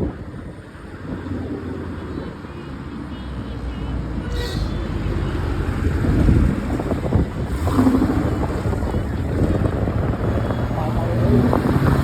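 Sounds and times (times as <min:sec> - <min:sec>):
car exhaust rumbling: 0:05.8 - 0:12.0.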